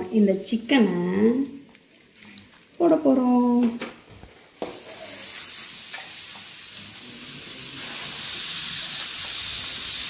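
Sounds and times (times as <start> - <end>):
chicken sizzling in pan: 4.6 - 10.0.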